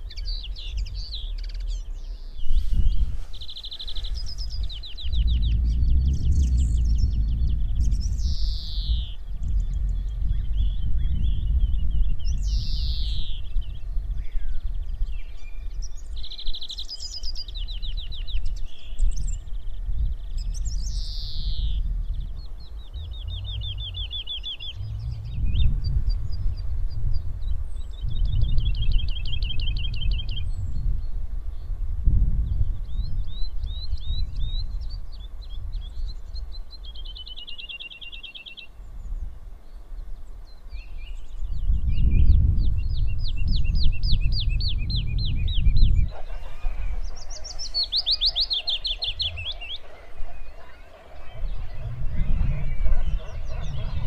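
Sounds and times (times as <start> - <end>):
low rumble: 4.1 - 12.7, 19.9 - 27.6, 48.7 - 54.0
songbird trilling: 20.2 - 26.7, 43.0 - 54.0.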